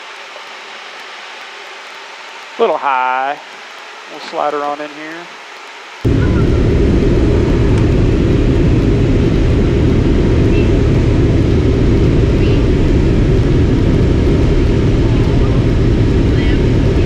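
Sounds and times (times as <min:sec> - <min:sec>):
airplane engine and propeller drone: 0:06.0 - 0:17.0.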